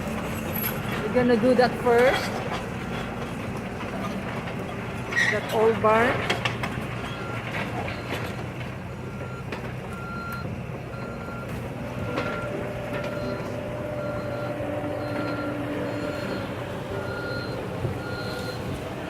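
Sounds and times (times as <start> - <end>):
diesel engine humming: 0.0 - 19.0
steady engine tone: 0.0 - 19.0
backup alarm beeping: 8.9 - 18.7.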